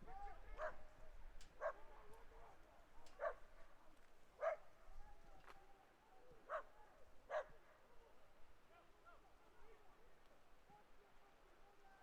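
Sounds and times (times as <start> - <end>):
dog barking faintly: 0.1 - 0.9, 1.6 - 1.9, 3.1 - 3.6, 4.4 - 4.7.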